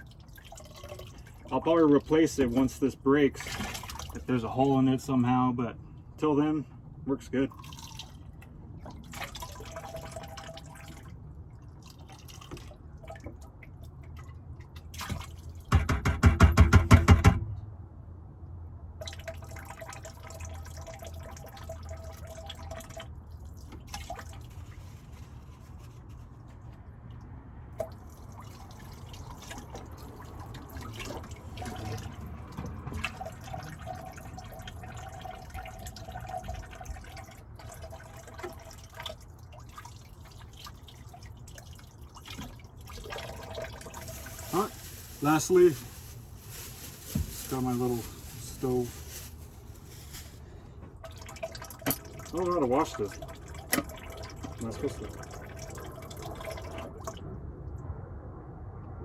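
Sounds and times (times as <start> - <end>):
water running in sink: 42.4 - 45.6.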